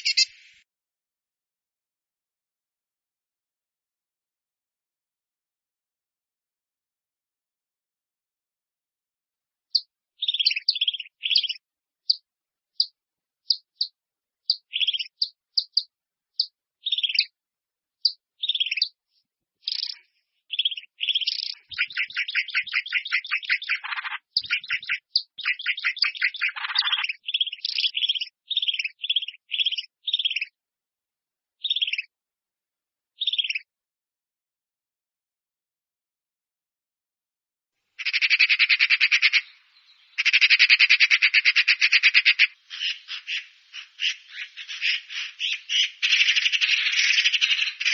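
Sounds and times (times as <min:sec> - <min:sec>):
small bird chirping: 0:00.0 - 0:00.6, 0:09.7 - 0:17.4, 0:18.0 - 0:30.6, 0:31.6 - 0:32.1, 0:33.2 - 0:33.7, 0:38.0 - 0:47.9.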